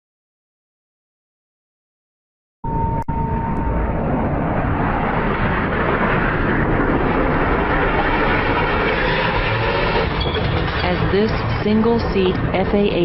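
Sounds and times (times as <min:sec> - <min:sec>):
jet engine rushing: 0:02.7 - 0:13.0.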